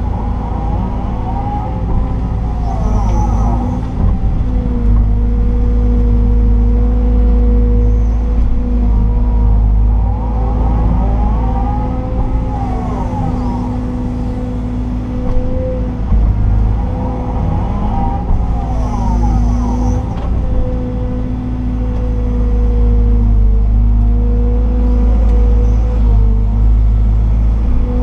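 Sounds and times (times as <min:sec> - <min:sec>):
excavator diesel engine running: 0:00.0 - 0:28.0
hydraulic whine: 0:00.0 - 0:28.0.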